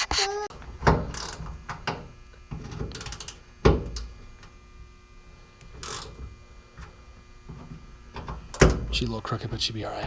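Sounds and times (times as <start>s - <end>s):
faint shop hum: 0.0s - 10.0s.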